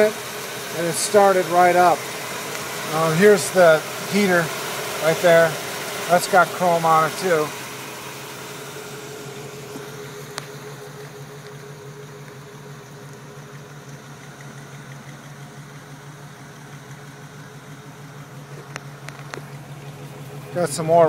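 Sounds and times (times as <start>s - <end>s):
man talking: 0.0s - 2.0s, 2.8s - 7.6s, 20.5s - 21.0s
car engine idling: 0.0s - 21.0s.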